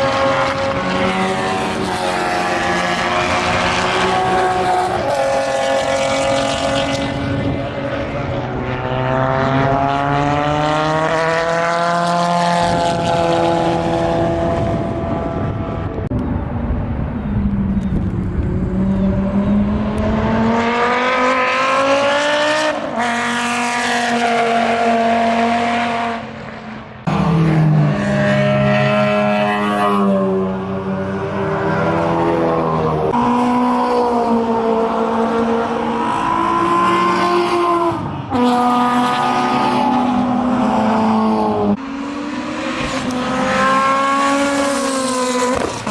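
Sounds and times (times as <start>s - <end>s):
race cars accelerating past: 0.0s - 45.9s.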